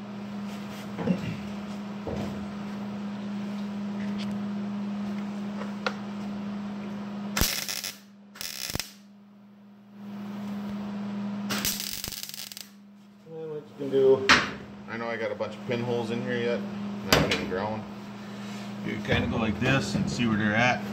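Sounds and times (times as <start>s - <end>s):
electrical hum: 0.0s - 20.9s
welding bursts: 7.4s - 9.0s, 11.5s - 12.8s.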